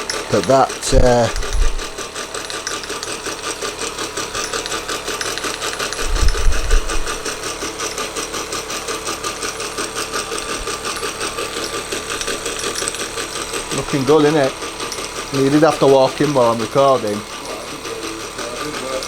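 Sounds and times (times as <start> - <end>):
fast gear rattle: 0.0 - 19.0
model steam engine running: 0.0 - 19.0.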